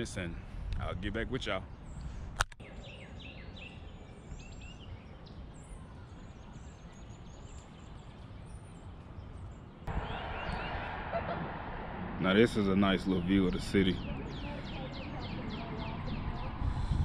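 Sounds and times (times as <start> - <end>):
songbirds chirping: 0.0 - 17.0
low outdoor rumble: 9.9 - 17.0.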